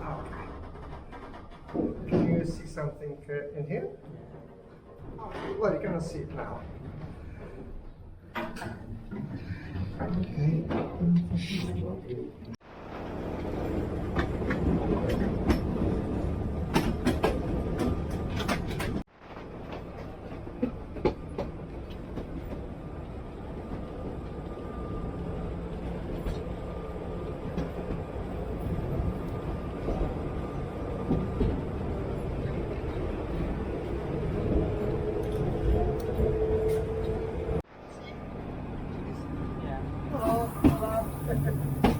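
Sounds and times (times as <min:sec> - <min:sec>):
rail clicks and rattles: 0:00.0 - 0:02.8, 0:13.3 - 0:22.8
tram rumbling on rails: 0:00.0 - 0:41.9.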